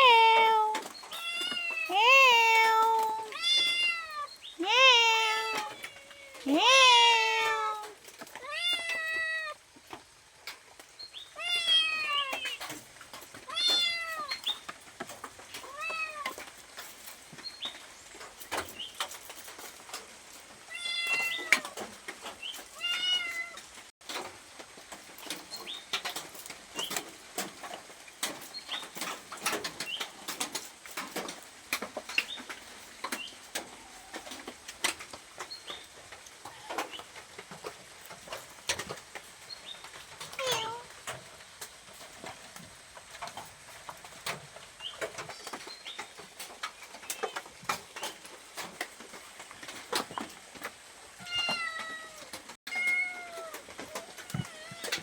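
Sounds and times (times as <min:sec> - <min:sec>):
cat meowing: 0:00.0 - 0:09.6, 0:11.4 - 0:12.6, 0:13.5 - 0:14.4, 0:15.6 - 0:16.4, 0:20.7 - 0:21.8, 0:22.8 - 0:23.6, 0:40.4 - 0:40.9, 0:51.2 - 0:55.0.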